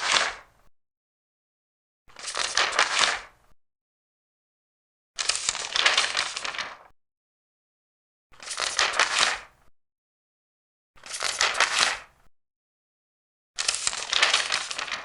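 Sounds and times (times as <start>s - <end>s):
paper pages turning: 2.1s - 3.3s, 5.2s - 6.9s, 8.4s - 9.5s, 11.0s - 12.1s, 13.6s - 15.0s.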